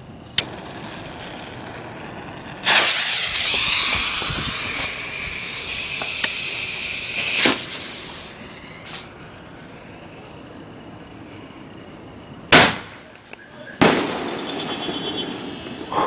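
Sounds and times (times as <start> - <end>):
firework cracks: 0.0 - 9.6, 12.5 - 13.2, 13.8 - 16.0
firework blast: 0.0 - 10.0, 12.5 - 13.1, 13.8 - 16.0
firework hissing and whistling: 0.0 - 12.8, 13.5 - 16.0.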